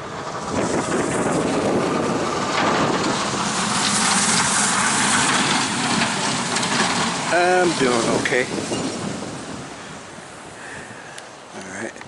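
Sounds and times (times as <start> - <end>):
strong wind on microphone: 0.0 - 11.5.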